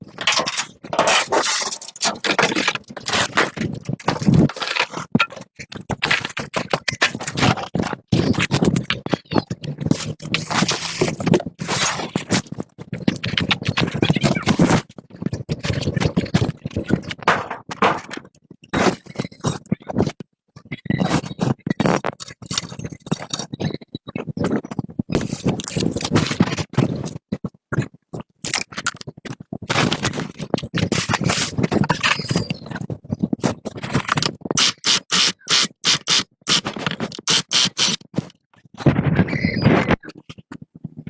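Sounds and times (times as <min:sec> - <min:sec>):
hand tools scraping metal: 0:00.1 - 0:05.4, 0:34.2 - 0:38.2.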